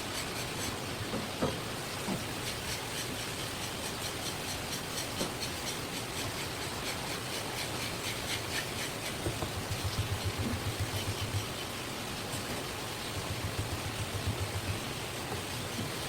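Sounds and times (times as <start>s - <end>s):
knife scraping fish: 0.0s - 0.9s, 2.2s - 11.7s
steady hiss: 0.0s - 16.0s.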